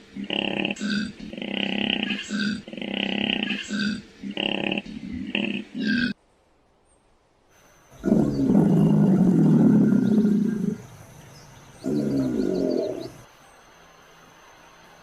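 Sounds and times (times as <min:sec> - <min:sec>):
animal calling loudly: 0:08.0 - 0:11.1, 0:11.8 - 0:13.3.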